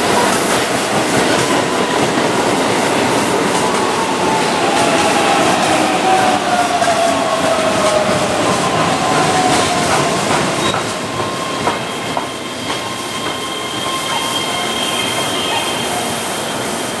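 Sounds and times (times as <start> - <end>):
train wheels squealing on curve: 0.2 - 17.0.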